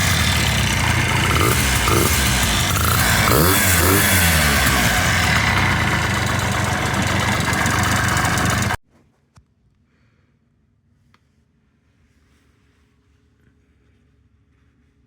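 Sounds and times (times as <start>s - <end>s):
scooter engine idling: 0.0s - 8.8s.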